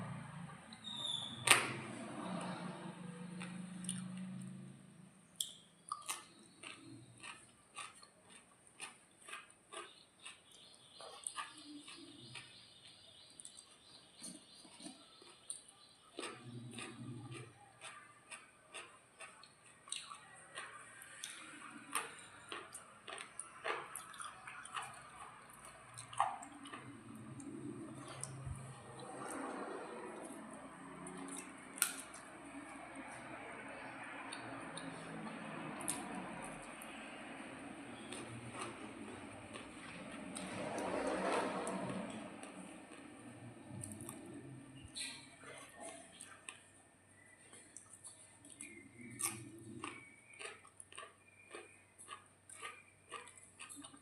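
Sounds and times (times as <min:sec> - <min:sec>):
mouth clicks while chewing: 0:05.4 - 0:12.6, 0:43.7 - 0:54.0.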